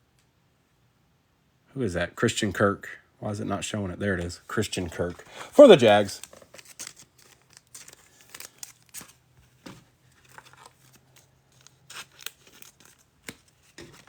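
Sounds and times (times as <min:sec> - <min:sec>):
trading cards being handled: 0:04.1 - 0:14.0
pack wrapper crinkling: 0:04.6 - 0:14.0.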